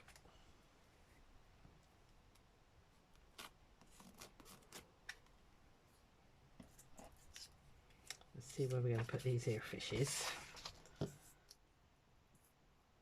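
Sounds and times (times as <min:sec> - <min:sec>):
paper clicks and rustles: 0:10.0 - 0:11.1.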